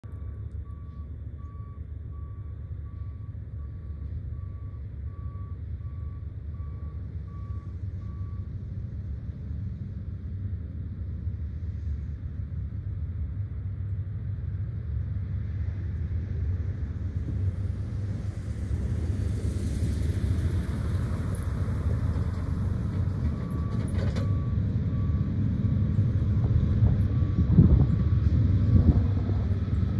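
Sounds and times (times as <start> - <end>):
diesel locomotives rumbling: 0.0 - 29.9
faint beeping tone: 0.1 - 8.5.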